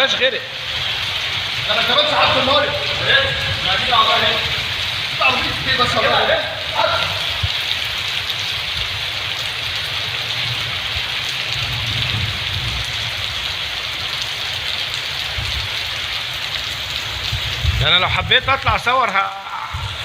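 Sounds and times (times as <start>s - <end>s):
low thunder rumble: 0.0s - 9.1s, 10.4s - 13.6s, 17.0s - 18.9s, 19.6s - 20.0s
heavy rain pouring: 0.0s - 20.0s.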